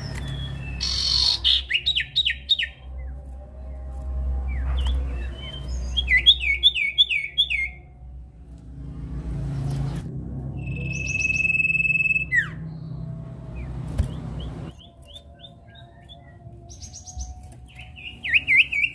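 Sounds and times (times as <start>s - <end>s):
bird whistling down-slurred notes: 0.0s - 2.8s, 10.6s - 12.9s, 13.6s - 18.9s
steady low hum: 7.7s - 18.2s.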